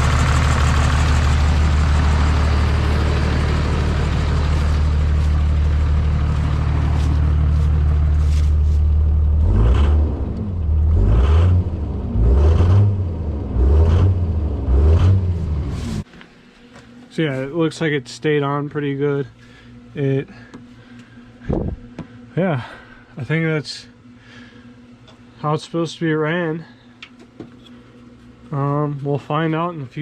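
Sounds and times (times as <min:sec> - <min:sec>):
diesel engine idling and revving: 0:00.0 - 0:16.1.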